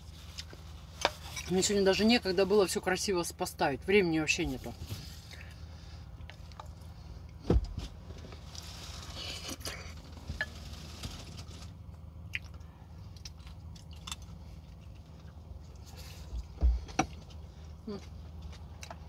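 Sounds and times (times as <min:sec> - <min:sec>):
steady low hum: 0:00.0 - 0:19.0
person chewing food: 0:06.2 - 0:07.4, 0:11.9 - 0:19.0.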